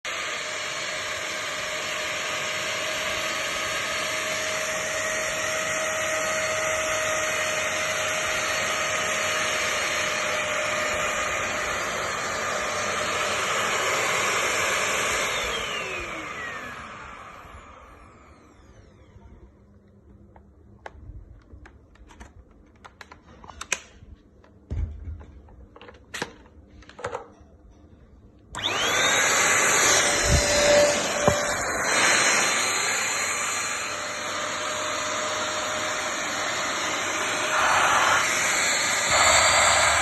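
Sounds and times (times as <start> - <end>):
vacuum cleaner whining: 0.0 - 19.8, 28.5 - 40.0
vacuum motor winding down: 0.1 - 19.3, 28.5 - 40.0.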